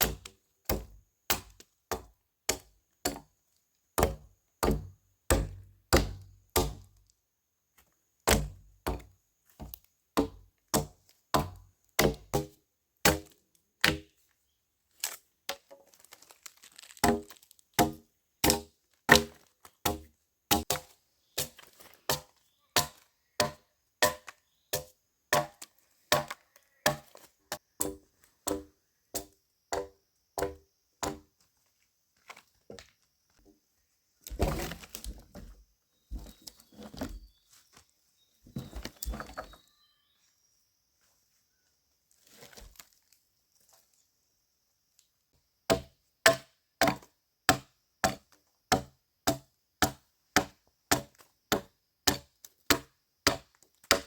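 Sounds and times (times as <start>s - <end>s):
wood chopping strikes: 0.0s - 3.3s, 4.0s - 7.0s, 8.3s - 14.1s, 17.0s - 27.2s, 27.8s - 31.3s, 45.7s - 54.0s
wood cracking and rustling: 14.9s - 19.9s, 34.2s - 37.3s.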